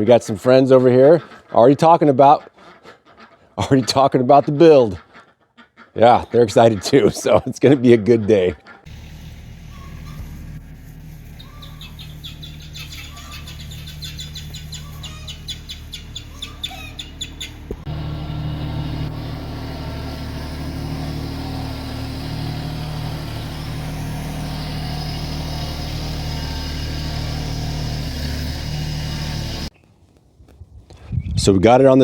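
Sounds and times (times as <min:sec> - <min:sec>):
birds chirping: 0:00.0 - 0:29.9
tractor engine humming: 0:08.3 - 0:29.7.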